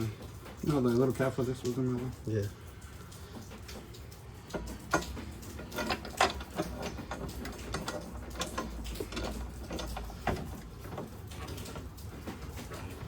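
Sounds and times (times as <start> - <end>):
metal parts knocking: 4.5 - 13.0.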